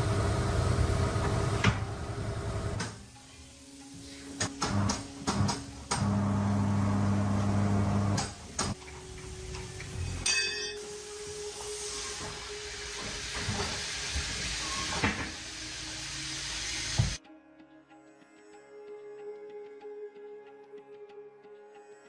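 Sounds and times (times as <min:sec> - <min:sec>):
hiss: 0:02.1 - 0:06.0, 0:10.7 - 0:17.2.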